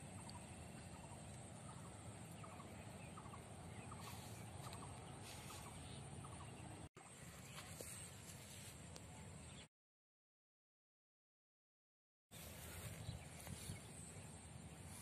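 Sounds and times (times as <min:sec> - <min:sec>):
faint bird calls: 0:00.0 - 0:06.8
quiet outdoor hiss: 0:00.0 - 0:09.7, 0:12.4 - 0:15.0.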